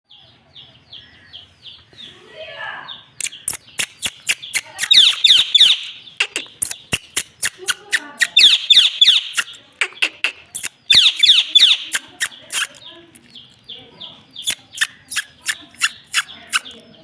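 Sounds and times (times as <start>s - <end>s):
sharp clicks: 3.2s - 13.6s
parakeet shrill calls: 3.4s - 12.7s.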